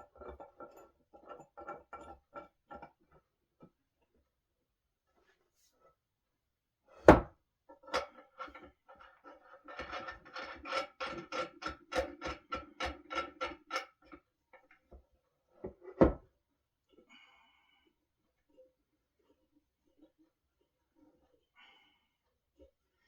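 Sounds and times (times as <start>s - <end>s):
loud knock on wooden table: 7.1s - 7.3s, 16.0s - 16.2s.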